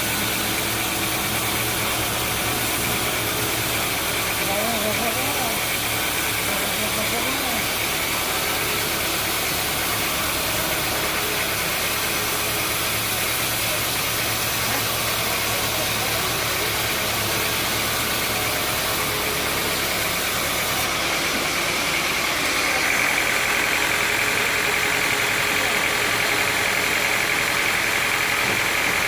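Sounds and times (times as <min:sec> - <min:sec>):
sawmill machinery droning: 0:00.0 - 0:29.0.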